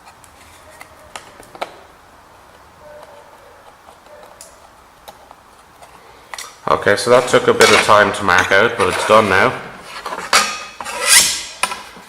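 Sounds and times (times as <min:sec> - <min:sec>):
tools scraping sheet metal: 0:07.2 - 0:12.0.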